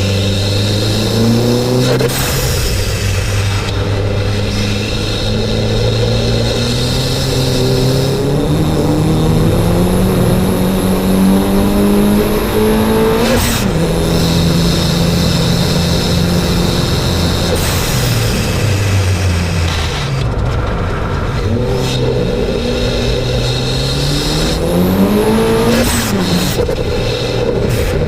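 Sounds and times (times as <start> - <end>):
high turbo whistle: 0.0 - 20.1
car engine revving: 0.0 - 28.0.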